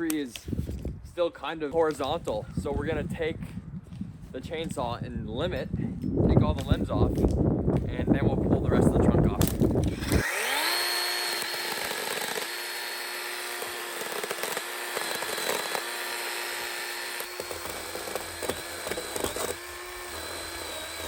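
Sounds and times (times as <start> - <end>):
chainsaw cutting wood: 9.4 - 21.0
wood cracking: 9.4 - 21.0.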